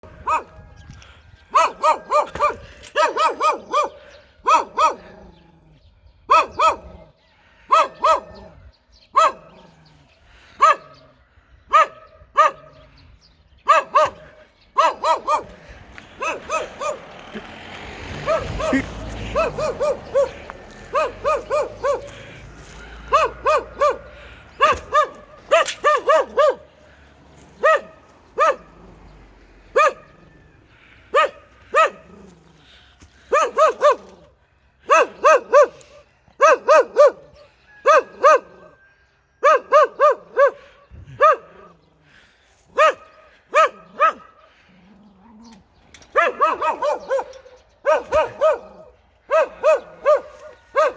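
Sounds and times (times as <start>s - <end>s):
dog barking aggressively: 0.0s - 0.6s, 1.5s - 5.4s, 6.3s - 7.1s, 7.7s - 9.7s, 10.6s - 11.0s, 11.7s - 12.9s, 13.6s - 32.6s, 33.2s - 38.8s, 39.4s - 41.9s, 42.7s - 45.5s, 46.1s - 50.9s.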